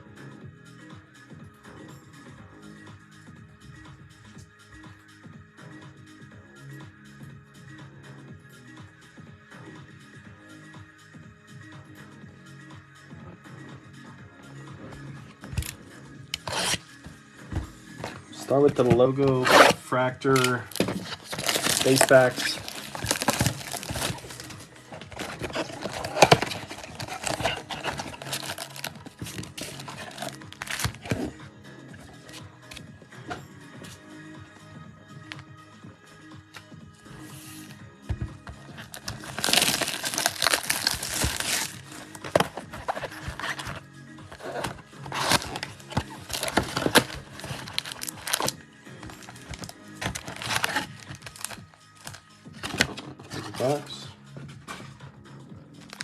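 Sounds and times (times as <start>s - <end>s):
background music: 0.0s - 56.0s
foil wrappers tearing and crinkling: 16.4s - 16.8s, 19.4s - 31.1s, 38.9s - 43.8s, 44.6s - 52.8s.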